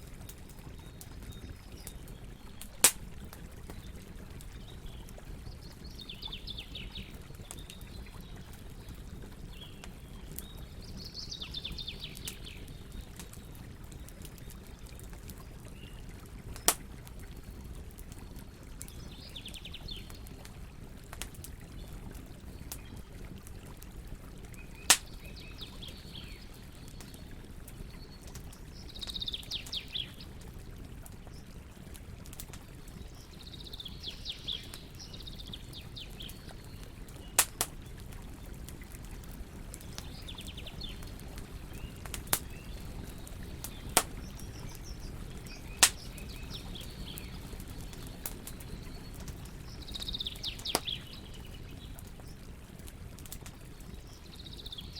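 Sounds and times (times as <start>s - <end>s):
fire popping: 0.0s - 54.8s
wood fire crackling: 0.0s - 54.9s
songbird singing: 3.7s - 13.5s, 24.6s - 28.2s, 28.8s - 30.2s, 33.0s - 37.9s, 39.4s - 52.4s, 53.8s - 54.9s.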